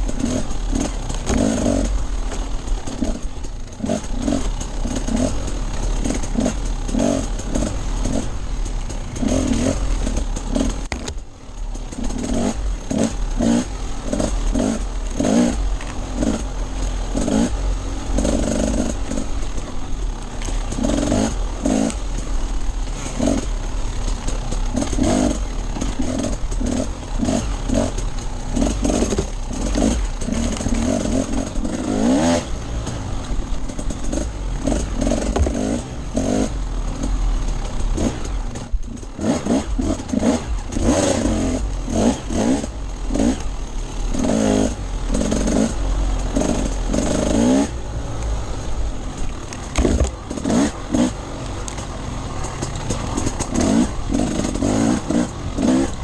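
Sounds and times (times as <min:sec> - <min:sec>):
dirt bike engine revving: 0:00.0 - 0:56.0
bike clattering: 0:49.0 - 0:56.0.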